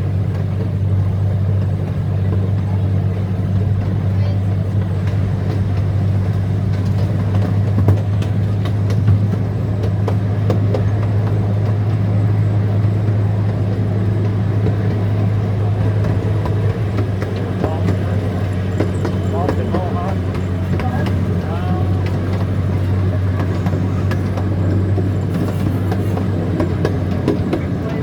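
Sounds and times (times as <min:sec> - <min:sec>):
low engine drone: 0:00.0 - 0:28.0
knocks from moving cars: 0:04.8 - 0:28.0.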